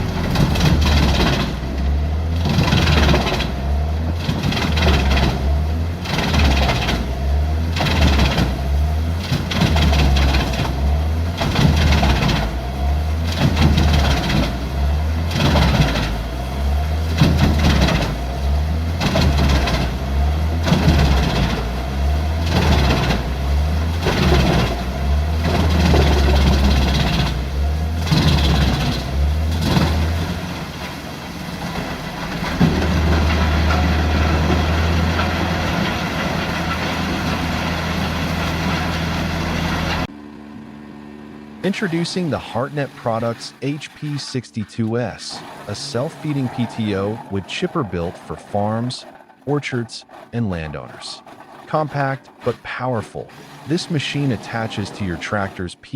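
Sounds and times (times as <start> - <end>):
wood chipping noise: 0.0 - 40.1, 41.7 - 55.8
low engine drone: 31.8 - 55.9.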